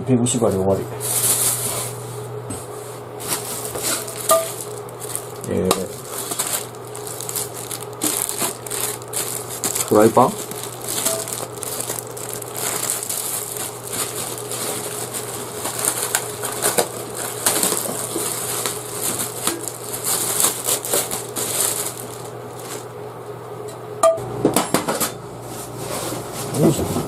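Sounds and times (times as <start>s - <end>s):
packaging crinkling: 1.0s - 2.0s, 3.2s - 22.9s.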